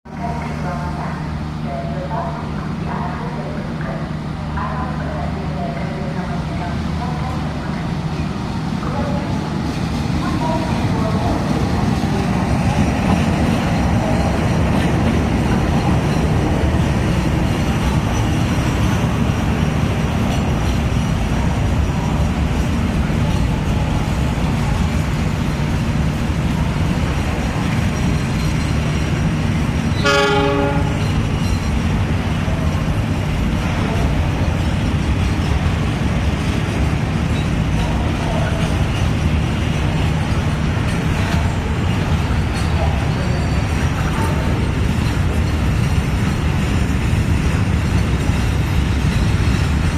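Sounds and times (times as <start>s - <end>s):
train wheels rumbling on rails: 0.1s - 49.9s
train horn toot: 30.0s - 31.1s.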